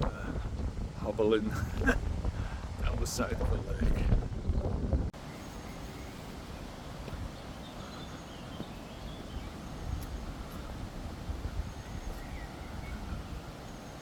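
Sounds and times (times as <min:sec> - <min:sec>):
low rumble of motorway traffic: 0:00.0 - 0:14.0
faint bird chirps: 0:05.2 - 0:10.8, 0:11.4 - 0:14.0.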